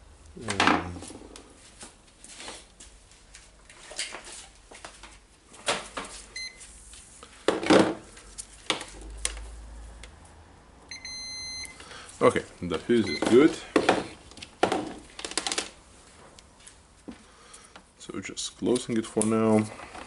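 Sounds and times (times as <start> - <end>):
multimeter beep: 6.4 - 6.6, 10.9 - 11.8, 13.0 - 13.4
plastic parts and tools clattering: 13.2 - 15.8.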